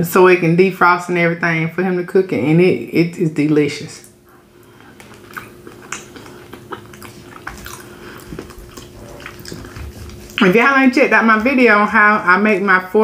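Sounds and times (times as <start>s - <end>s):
person chewing food: 4.1s - 10.6s.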